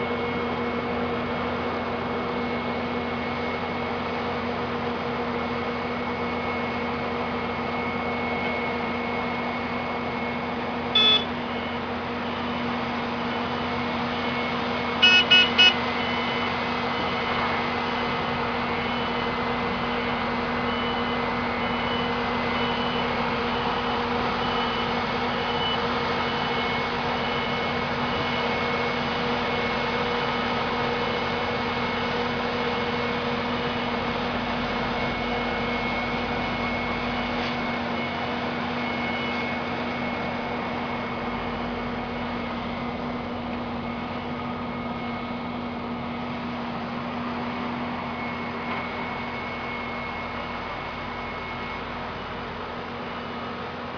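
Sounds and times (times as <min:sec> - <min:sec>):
heavy vehicle engine running: 0:00.0 - 0:53.9
reversing alarm beeping: 0:00.0 - 0:53.9
loud short beeps: 0:10.9 - 0:11.6, 0:15.0 - 0:16.2.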